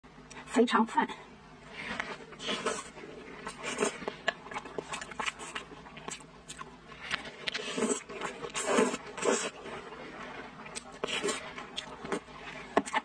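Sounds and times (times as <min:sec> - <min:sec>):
wet chewing: 0:01.8 - 0:13.0
mouth smacking and squelching: 0:02.3 - 0:09.9.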